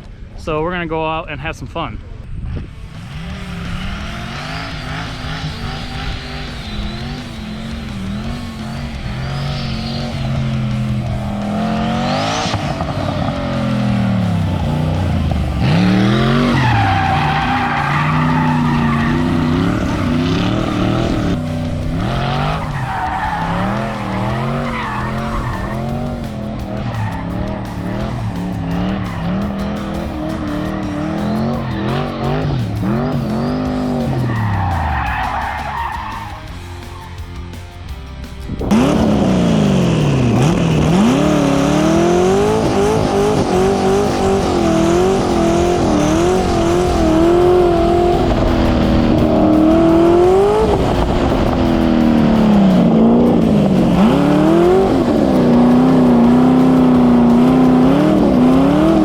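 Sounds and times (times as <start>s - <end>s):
car engine revving: 2.6s - 59.0s
tyres squealing: 3.2s - 37.5s.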